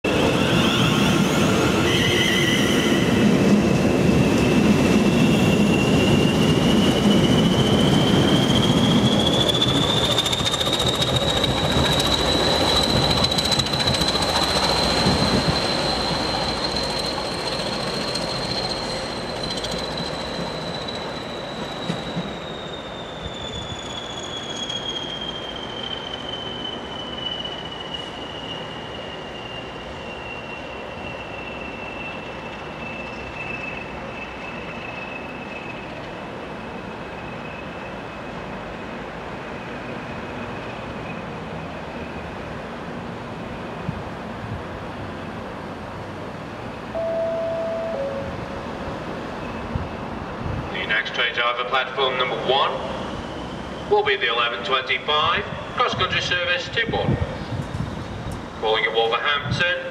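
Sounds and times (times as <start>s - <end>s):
high whistle: 5.0s - 35.8s, 47.0s - 48.6s.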